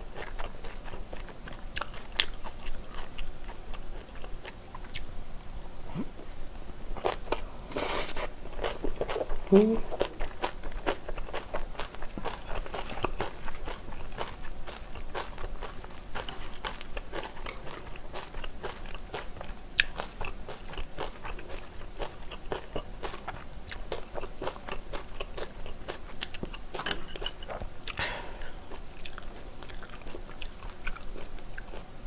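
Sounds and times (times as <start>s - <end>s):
chewing with wet crunches: 0.0s - 6.4s, 7.0s - 31.9s
chopsticks clinking on metal bowl: 26.8s - 27.4s.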